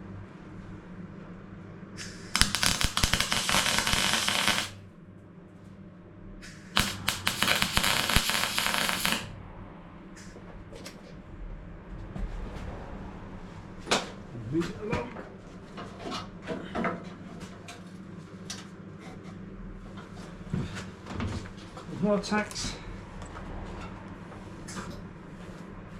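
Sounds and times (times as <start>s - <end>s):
welder crackling: 2.4s - 4.8s, 6.8s - 9.3s.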